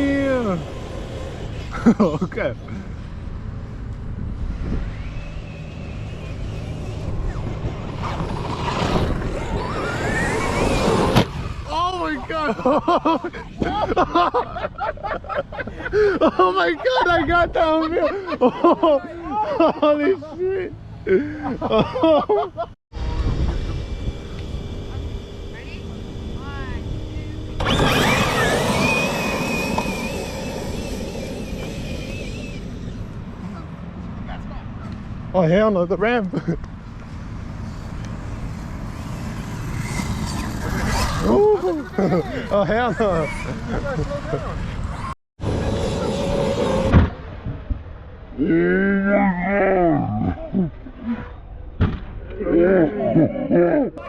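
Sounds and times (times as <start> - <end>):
tyre and drivetrain noise: 0.0 - 11.8, 23.0 - 47.6
electric motor whining: 4.6 - 11.7, 23.0 - 33.4
low rumble: 23.0 - 33.6.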